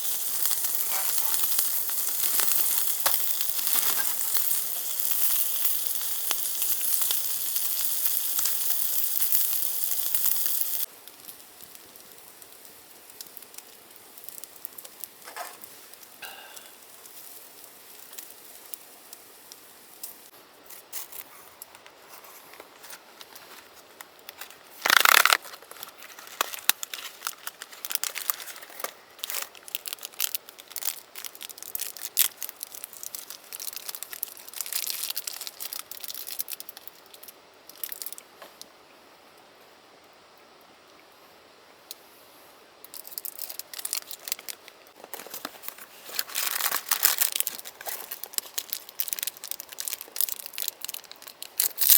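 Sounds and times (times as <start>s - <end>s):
packaging crinkling and clicking: 0.1s - 10.8s, 21.1s - 38.2s, 42.9s - 51.9s
packaging torn open: 0.3s - 6.4s, 22.7s - 36.9s, 43.0s - 51.9s.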